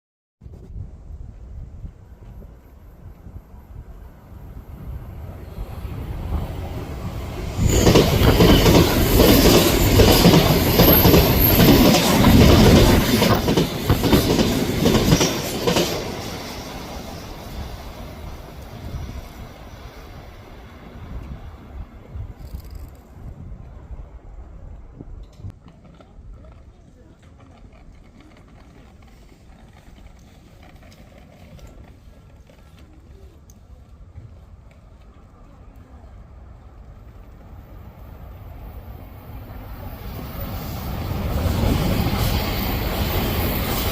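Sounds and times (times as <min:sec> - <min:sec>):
electric train rumble: 0:00.8 - 0:25.5, 0:33.8 - 0:43.9
train wheels clattering: 0:07.5 - 0:18.7
light clicks and creaks: 0:22.4 - 0:23.2.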